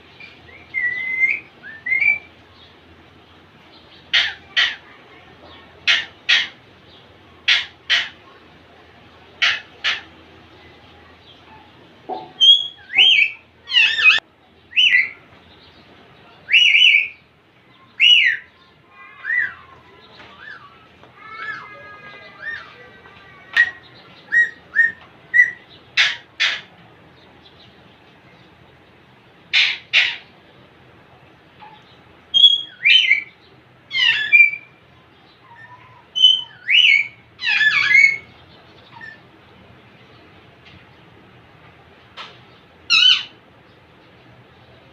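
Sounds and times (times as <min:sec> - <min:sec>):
parakeet whistled calls: 0:00.5 - 0:02.3, 0:12.4 - 0:14.2, 0:23.6 - 0:26.6, 0:32.4 - 0:33.3, 0:36.2 - 0:38.3, 0:42.9 - 0:43.3
parakeet chattering call: 0:04.1 - 0:05.0, 0:05.8 - 0:06.6, 0:07.4 - 0:08.2, 0:09.4 - 0:10.1, 0:20.4 - 0:26.7, 0:29.5 - 0:30.3, 0:33.9 - 0:34.7, 0:35.4 - 0:39.2, 0:42.9 - 0:43.4
parakeet whistling: 0:12.4 - 0:14.2, 0:32.4 - 0:33.3.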